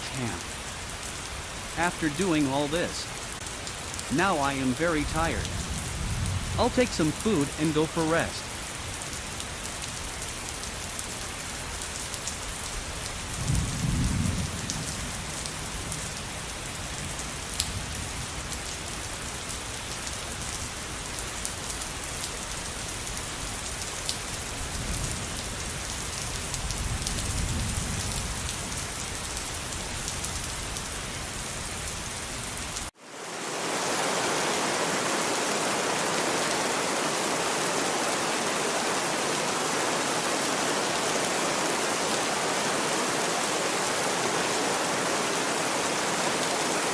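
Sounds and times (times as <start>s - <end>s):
rush of water: 0.0s - 13.6s, 32.8s - 46.9s
steady rain: 0.0s - 46.9s
thunder rumbling: 13.4s - 15.1s.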